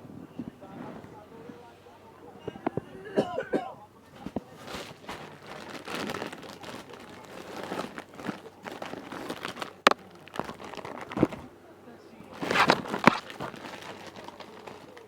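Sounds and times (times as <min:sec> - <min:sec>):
plastic bags crinkling: 0:04.0 - 0:11.6, 0:12.2 - 0:15.0.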